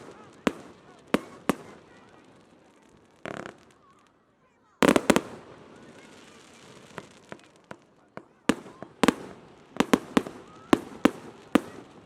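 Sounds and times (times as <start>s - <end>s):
fireworks exploding with echo: 0.0s - 12.0s.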